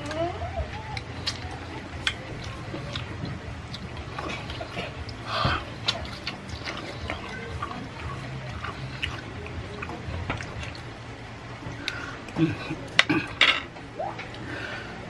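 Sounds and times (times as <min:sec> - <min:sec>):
wet chewing and lip-smacking: 0:00.0 - 0:11.0.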